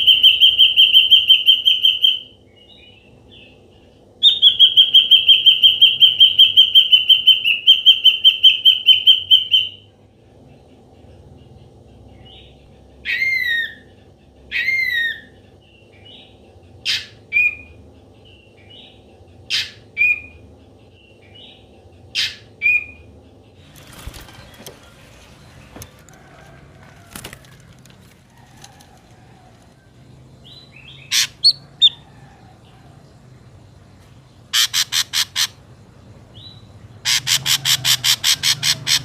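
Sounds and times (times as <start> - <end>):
bird calling harshly: 31.0 - 32.0, 34.5 - 35.6, 37.0 - 39.0.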